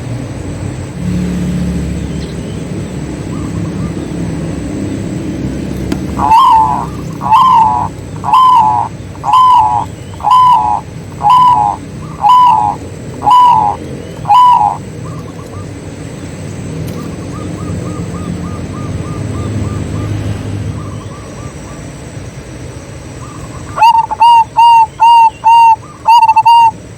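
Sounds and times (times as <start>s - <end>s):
dove calling: 3.0s - 22.1s, 22.8s - 26.9s
rapid staccato bird notes: 5.9s - 14.8s.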